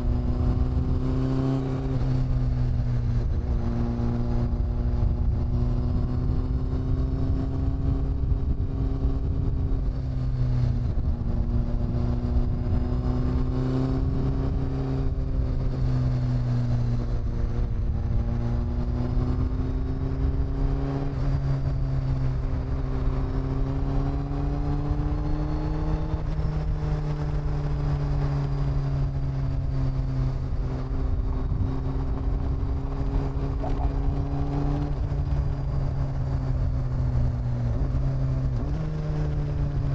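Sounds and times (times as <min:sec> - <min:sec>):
low road rumble: 0:00.0 - 0:39.9
motorcycle engine cruising: 0:00.0 - 0:39.9.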